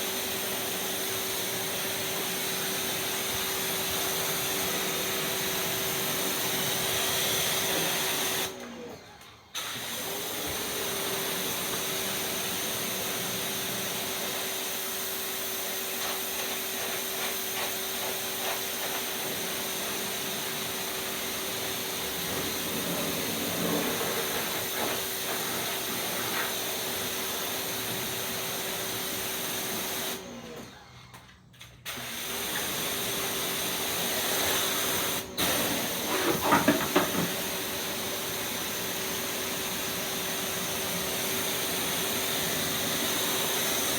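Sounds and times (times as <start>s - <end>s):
pressure washer spraying: 9.6s - 30.2s.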